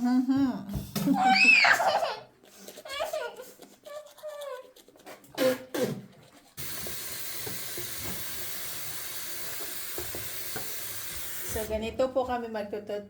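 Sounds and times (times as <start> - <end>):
water tap running: 6.6 - 11.9.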